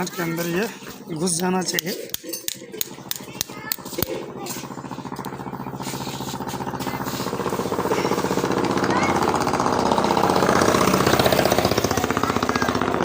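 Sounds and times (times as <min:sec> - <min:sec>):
motor with pulsing rattle: 0:00.0 - 0:13.0.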